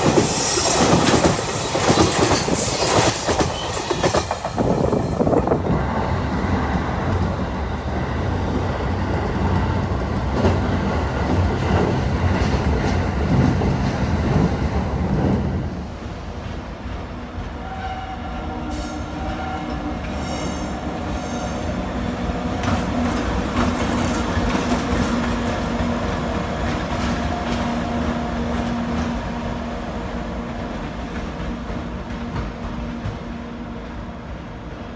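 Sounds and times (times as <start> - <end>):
train rumbling past: 0.0 - 34.9.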